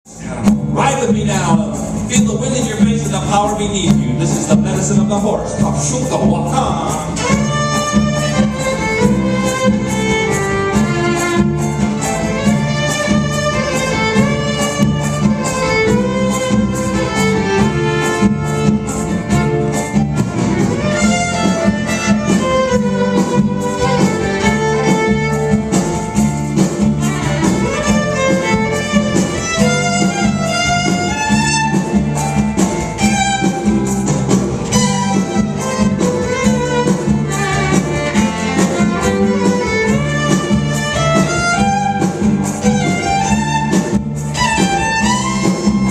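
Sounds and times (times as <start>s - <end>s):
steady driving beat: 0.1s - 45.9s
violin playing sliding melody: 0.2s - 45.9s.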